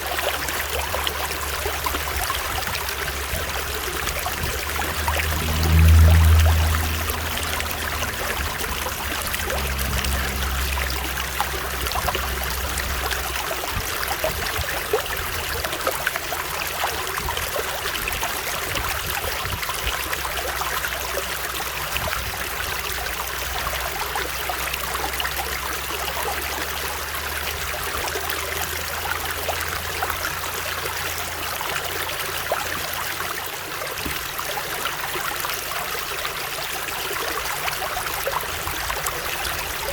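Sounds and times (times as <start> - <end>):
stream water rushing: 0.0 - 39.9
low rumble: 0.6 - 25.8.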